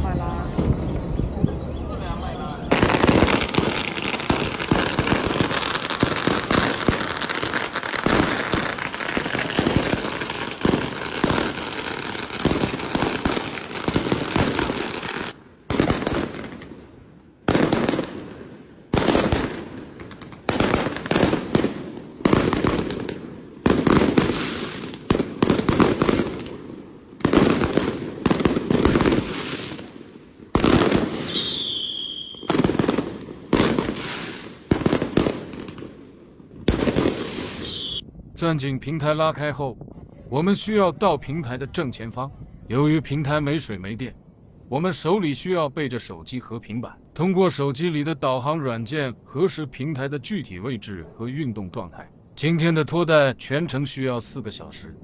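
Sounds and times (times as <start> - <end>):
firecrackers banging: 2.7 - 38.0
high whistling tone: 31.3 - 32.5, 37.6 - 38.0.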